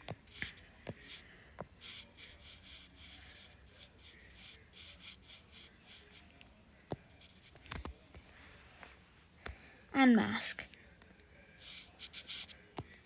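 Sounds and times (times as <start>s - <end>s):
scratchy writing strokes: 0.0s - 1.2s, 1.8s - 6.2s, 7.0s - 7.8s, 11.6s - 12.6s.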